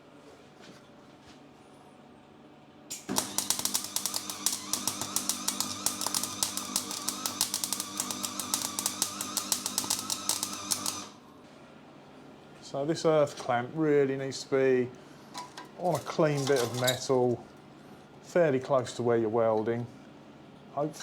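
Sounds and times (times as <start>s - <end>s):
welding arc crackling: 2.9s - 11.2s.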